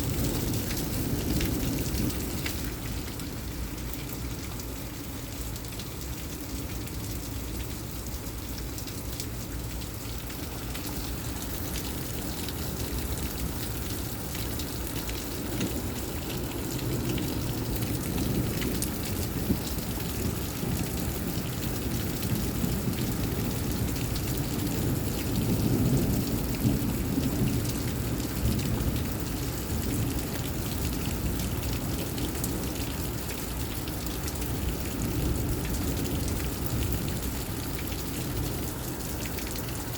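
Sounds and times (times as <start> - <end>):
thunder rumbling: 0.0 - 3.8
steady rain: 0.0 - 39.9.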